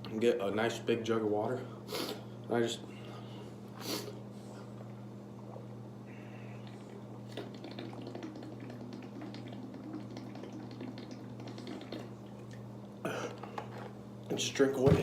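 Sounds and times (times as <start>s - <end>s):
person gulping: 4.8s - 13.7s.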